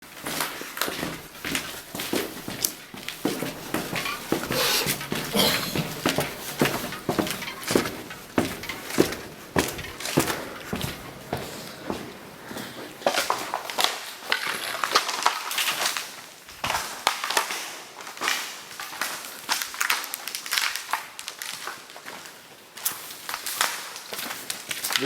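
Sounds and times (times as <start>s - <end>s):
footsteps crunching through snow: 0.2s - 12.9s.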